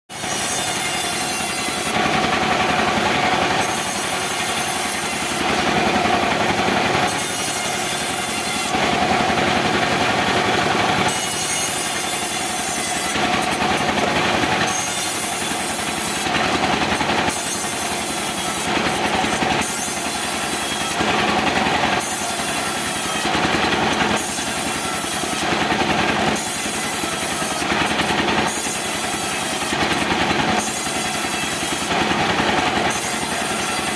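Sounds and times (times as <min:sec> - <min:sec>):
chainsaw cutting wood: 0:00.1 - 0:33.9.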